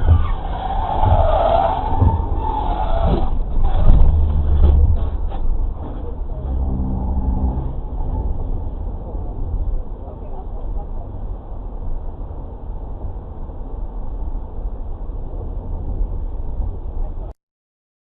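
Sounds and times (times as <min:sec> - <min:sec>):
car engine: 0:00.0 - 0:14.0
road noise: 0:00.0 - 0:17.4.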